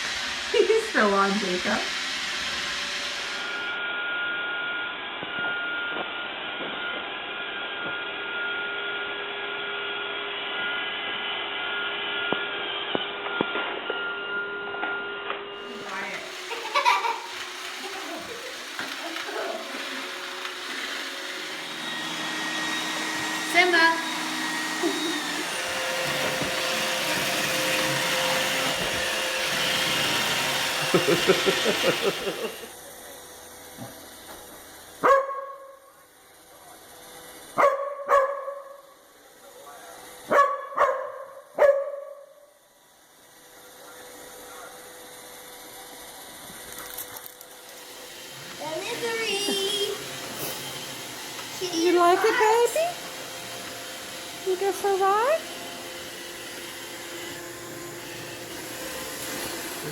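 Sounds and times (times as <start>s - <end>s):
robot vacuum humming: 0.0s - 13.3s, 15.6s - 35.0s, 42.9s - 59.9s
dog barking: 35.0s - 35.8s, 37.6s - 38.8s, 40.3s - 42.3s.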